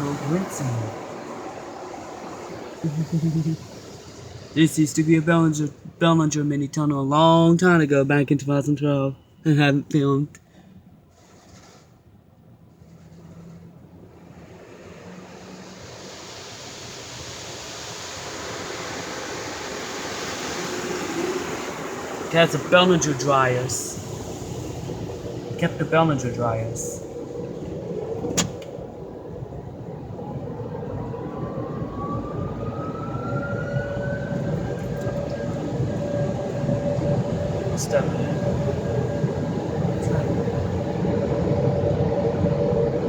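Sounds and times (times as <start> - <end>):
blower whine rising in pitch: 0.0 - 5.7, 14.4 - 43.0
dryer blowers rushing air: 0.0 - 7.8, 13.7 - 43.0
steady higher hum: 0.0 - 10.1, 20.8 - 30.6, 32.6 - 43.0
water spray hissing: 2.1 - 5.2.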